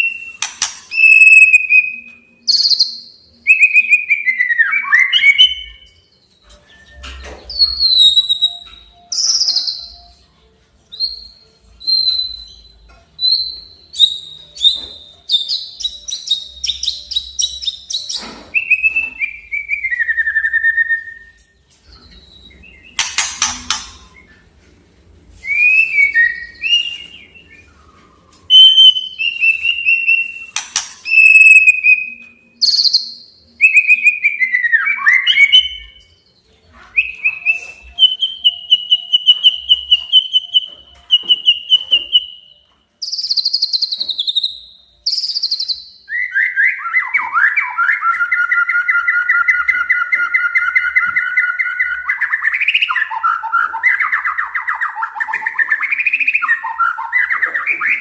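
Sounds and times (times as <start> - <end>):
bird whistled phrases: 0.0 - 5.9, 13.3 - 21.4, 25.4 - 36.0, 36.9 - 58.0
bird rattling trill: 23.0 - 24.2.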